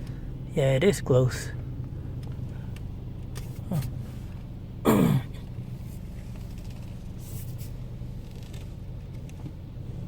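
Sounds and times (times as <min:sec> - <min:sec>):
car engine humming at low revs: 0:00.0 - 0:10.0.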